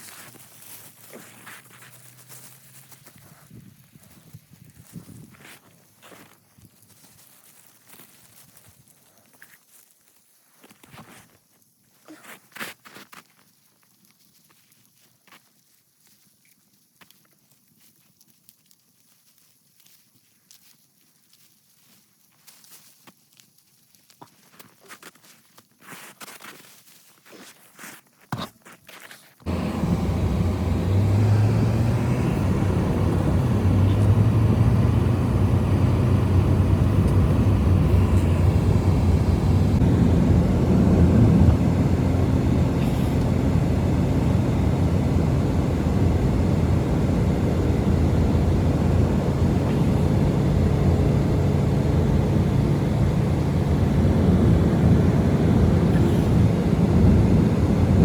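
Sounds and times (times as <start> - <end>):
blizzard wind rumbling: 29.5 - 58.0.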